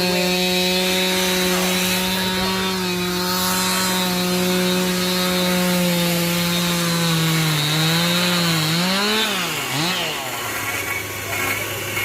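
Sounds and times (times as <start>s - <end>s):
chainsaw carving wood: 0.0s - 12.0s.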